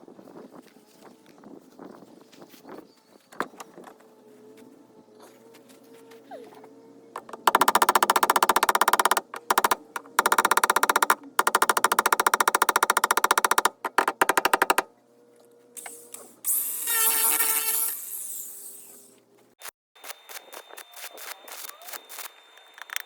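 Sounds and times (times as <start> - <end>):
welder crackling buzz: 15.8 - 19.0.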